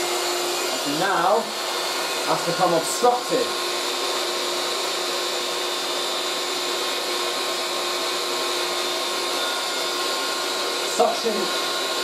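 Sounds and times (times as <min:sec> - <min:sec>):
handheld vacuum cleaner running: 0:00.0 - 0:12.0.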